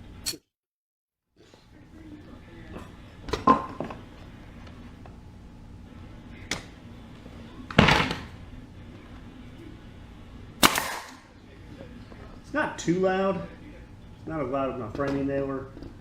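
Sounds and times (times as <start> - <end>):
nail gun snap: 10.6 - 11.2.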